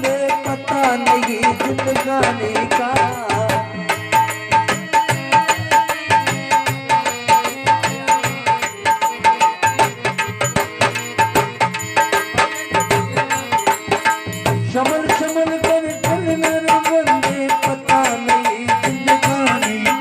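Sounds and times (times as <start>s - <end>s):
hand drum fast rhythm: 0.0s - 20.0s.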